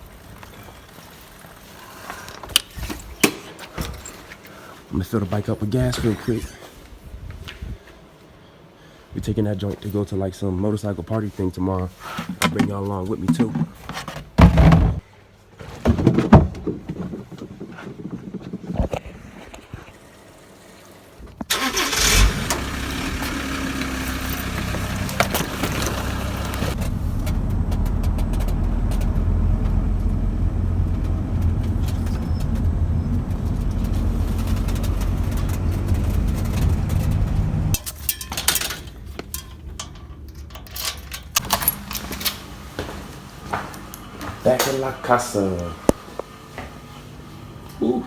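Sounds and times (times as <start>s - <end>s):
motorcycle engine running: 22.3s - 37.8s.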